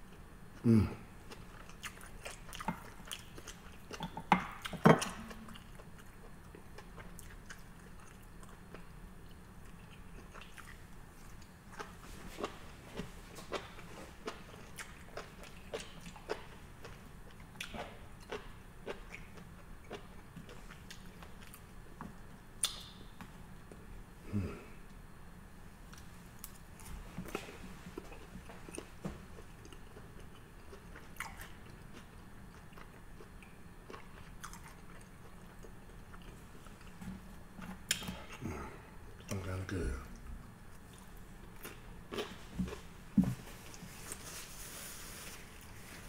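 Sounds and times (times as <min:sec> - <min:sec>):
person chewing food: 0:01.2 - 0:25.0, 0:25.9 - 0:39.4, 0:40.1 - 0:46.0
soft mouth clicks: 0:22.6 - 0:22.9.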